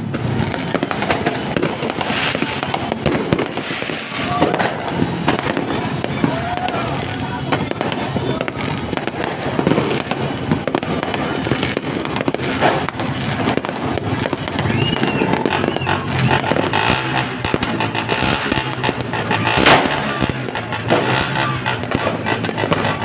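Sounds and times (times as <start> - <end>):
fireworks bangs: 0.0 - 23.0
fireworks crackling and popping: 0.0 - 23.0.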